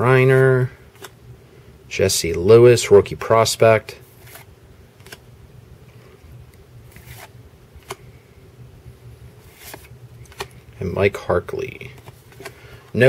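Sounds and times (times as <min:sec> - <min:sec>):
cards flipping swishes and clicks: 0:00.9 - 0:01.2, 0:04.0 - 0:05.3, 0:05.9 - 0:08.2, 0:09.3 - 0:10.8, 0:11.8 - 0:13.0.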